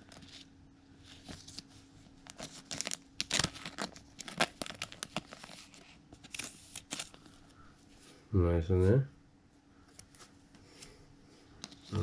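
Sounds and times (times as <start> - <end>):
foil wrapper crinkling: 1.1 - 7.4.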